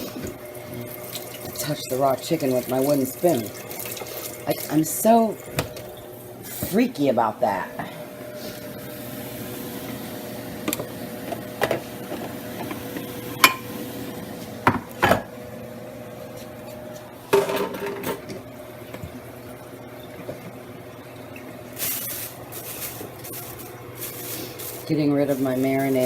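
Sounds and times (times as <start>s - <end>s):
fan hum: 0.0s - 26.0s
dishes clattering: 13.4s - 13.7s, 17.3s - 18.4s
utensils and dishes clinking: 13.4s - 13.7s, 17.3s - 18.4s.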